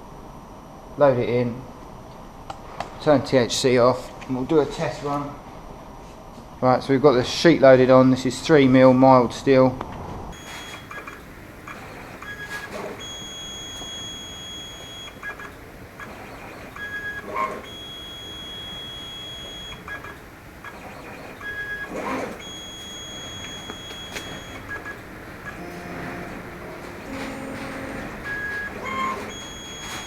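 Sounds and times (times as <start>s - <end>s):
clicks: 10.4s - 30.0s
steady background hiss: 10.4s - 30.0s
stepper motors whining: 10.4s - 30.0s.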